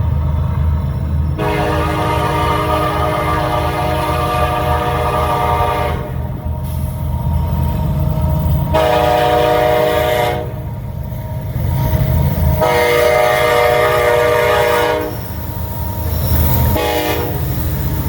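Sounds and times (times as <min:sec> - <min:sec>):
diesel locomotive engine rumble: 0:00.0 - 0:18.0
train rolling over jointed rail: 0:00.0 - 0:18.0
locomotive air horn blasts: 0:01.4 - 0:06.4, 0:08.7 - 0:10.7, 0:12.6 - 0:15.2, 0:16.8 - 0:17.5.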